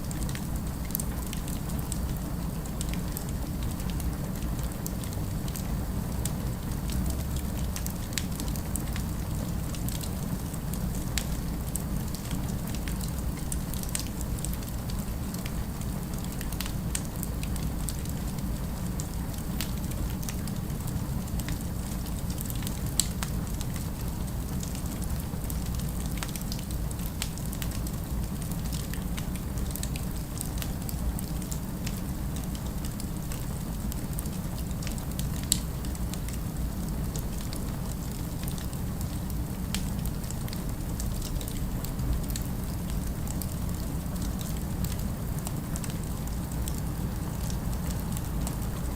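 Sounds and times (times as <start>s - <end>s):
fireplace fire crackling: 0.0s - 48.9s.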